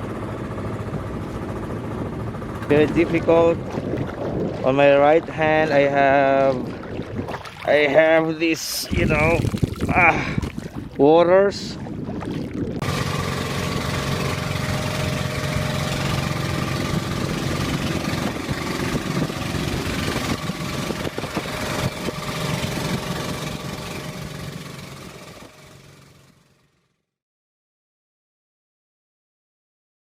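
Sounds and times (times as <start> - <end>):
boat engine running: 0.0 - 26.9
wind and water hiss: 1.4 - 24.0.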